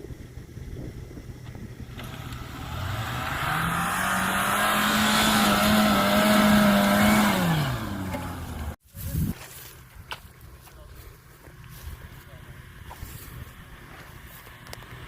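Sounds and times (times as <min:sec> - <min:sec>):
engine revving: 0:01.6 - 0:08.8.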